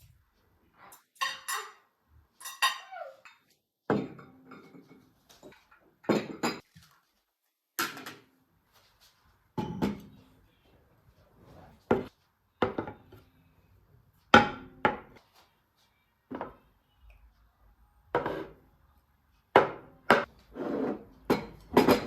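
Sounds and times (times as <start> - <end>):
dishes and cutlery clinking: 0.8 - 6.8, 9.6 - 10.4, 19.5 - 22.0.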